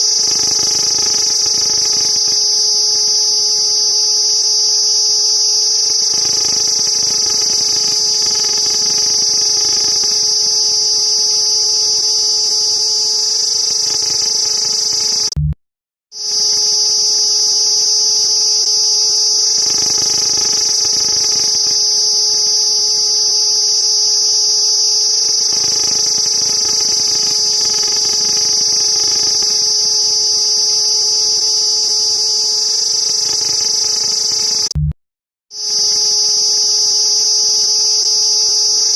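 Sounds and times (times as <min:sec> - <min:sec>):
cicada buzzing: 0:00.0 - 0:15.3, 0:16.2 - 0:34.7, 0:35.6 - 0:38.9
low hum: 0:34.7 - 0:34.9.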